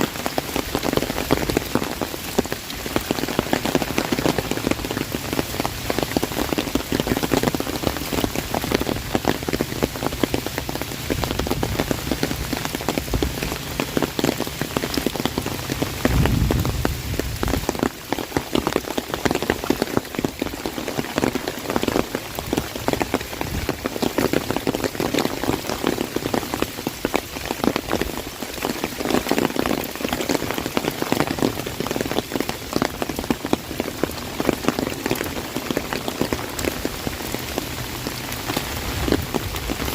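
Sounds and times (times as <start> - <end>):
heavy rain on an umbrella: 0.0 - 39.9
low rumble: 16.0 - 17.8.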